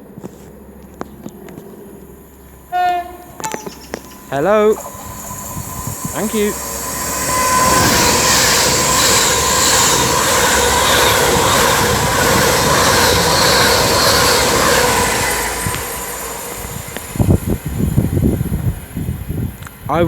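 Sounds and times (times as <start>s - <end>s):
faint steady whine: 0.0s - 12.3s
train passing at speed: 0.0s - 20.0s.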